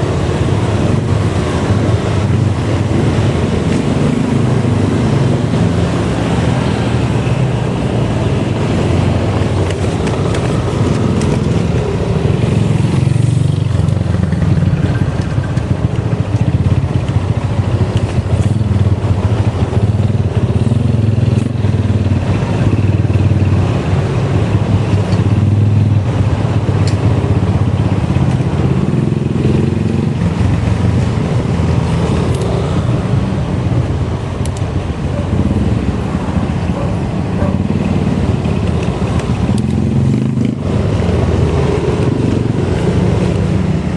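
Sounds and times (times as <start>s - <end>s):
motorbike low rumble: 0.0s - 43.9s.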